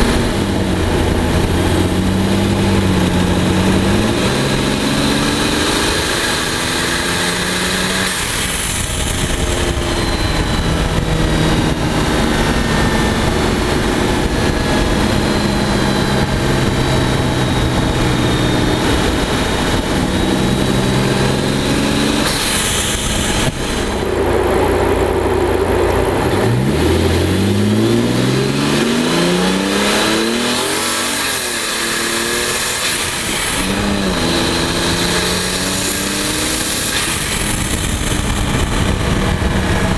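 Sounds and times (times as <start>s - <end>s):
car engine accelerating: 0.0s - 39.9s
blow-off valve air rush: 22.2s - 24.2s.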